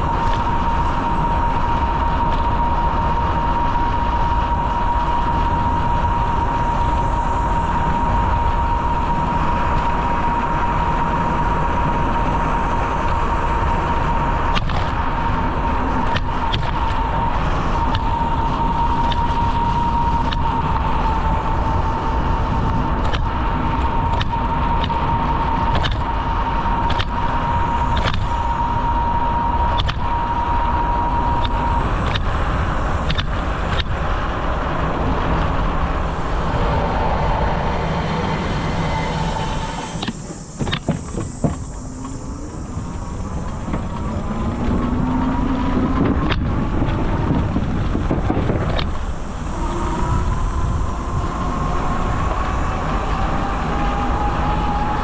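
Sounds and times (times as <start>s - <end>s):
high whine: 0.0s - 55.0s
wind on microphone: 0.0s - 55.0s
bicycle clicks and rattles: 0.1s - 2.7s, 14.5s - 21.3s, 23.0s - 34.4s, 42.9s - 49.3s.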